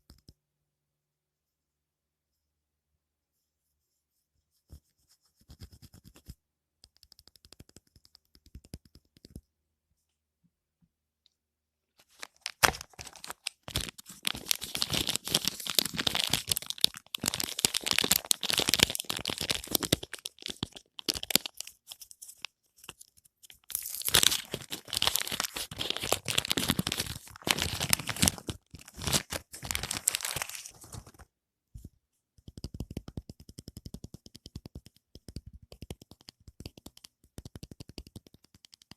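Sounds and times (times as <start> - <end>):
wrapper crackling and tearing: 12.1 - 21.8, 23.6 - 31.2.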